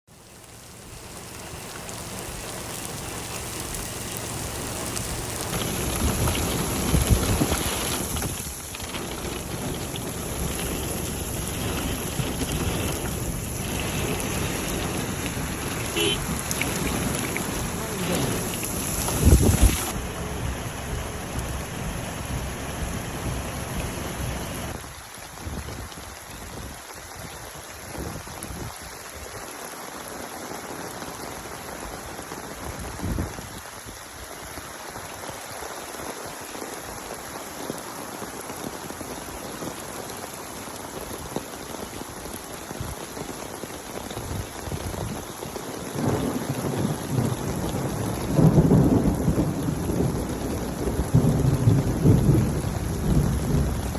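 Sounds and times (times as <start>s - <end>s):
rain falling: 0.1s - 53.9s
thunder rumbling: 1.4s - 24.8s, 44.2s - 53.9s.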